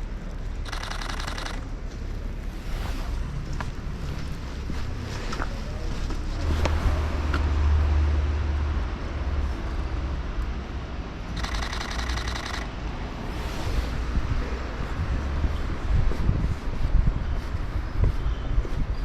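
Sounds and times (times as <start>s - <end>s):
passing traffic rumble: 0.0s - 19.0s
rapid run of clicks: 0.6s - 1.6s, 11.3s - 12.8s.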